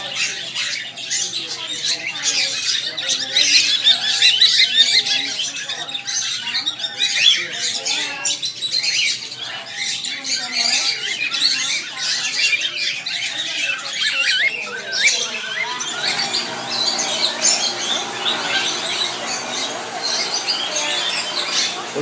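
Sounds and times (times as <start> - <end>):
caged birds squawking and chirping: 0.0 - 22.0
indistinct voices murmuring: 0.0 - 22.0.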